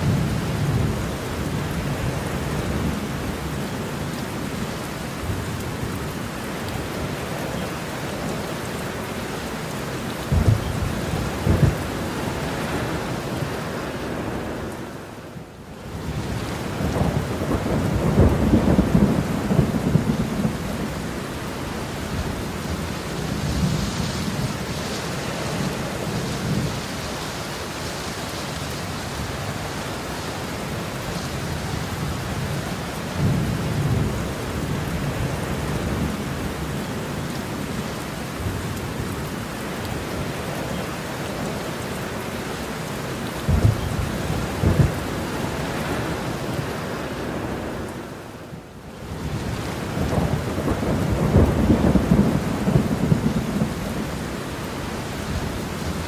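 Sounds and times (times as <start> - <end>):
heavy rain falling: 0.0 - 56.0
sharp thunder claps: 10.3 - 12.0, 43.5 - 45.0
thunder rumbling: 10.3 - 14.7, 16.0 - 27.0, 43.4 - 46.7, 49.2 - 56.0.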